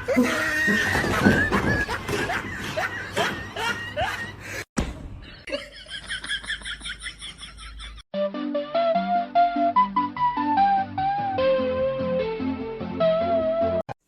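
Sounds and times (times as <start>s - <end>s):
person laughing: 0.0s - 4.6s.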